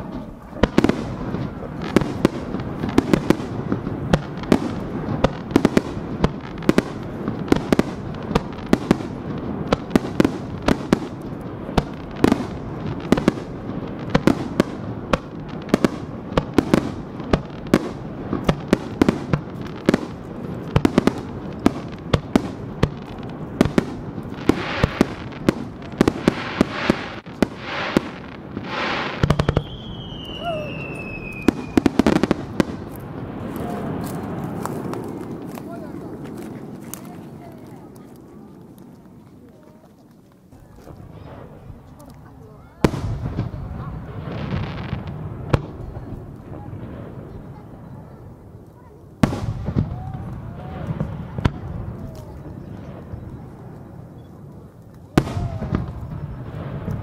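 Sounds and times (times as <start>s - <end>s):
firework hissing and crackle: 0.0s - 57.0s.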